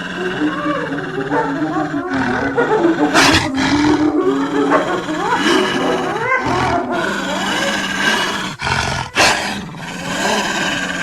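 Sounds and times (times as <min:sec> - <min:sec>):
creature roars and snarls: 0:00.0 - 0:11.0.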